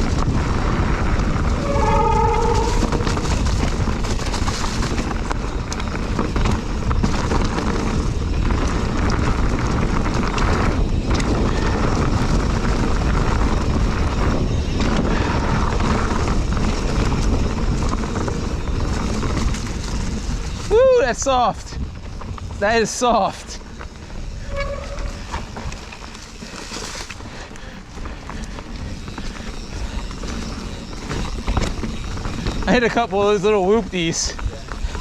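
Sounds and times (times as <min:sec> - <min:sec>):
wind rushing over microphone: 0:00.0 - 0:22.9
bike chain and frame rattling: 0:00.0 - 0:35.0.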